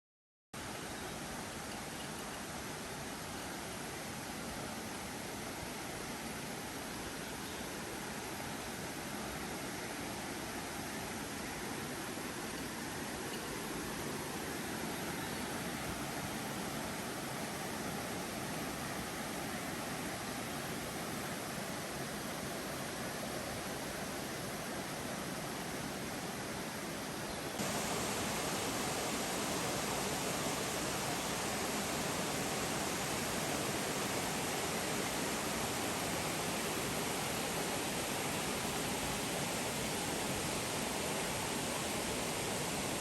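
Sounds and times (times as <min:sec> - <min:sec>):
waterfall rushing: 0:27.6 - 0:43.0.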